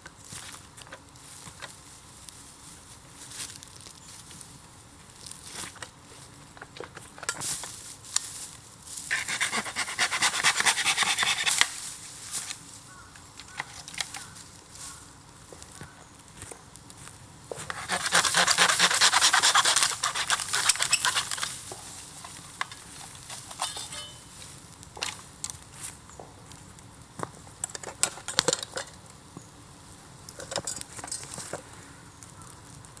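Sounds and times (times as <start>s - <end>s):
bonfire crackling and popping: 11.0s - 23.6s, 24.3s - 33.0s
fire hissing: 14.5s - 27.6s.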